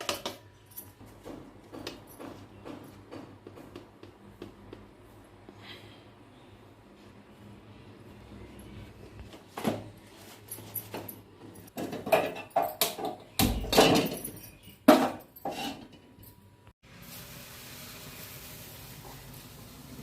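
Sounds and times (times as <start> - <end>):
kitchen utensils and dishes clattering: 0.0 - 3.1, 9.5 - 16.4.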